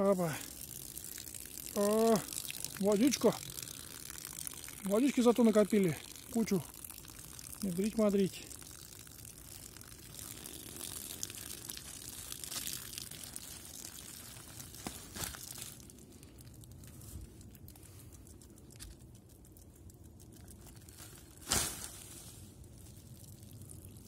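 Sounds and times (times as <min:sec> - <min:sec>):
plastic tarp crinkling: 0:10.1 - 0:16.0, 0:20.6 - 0:23.2.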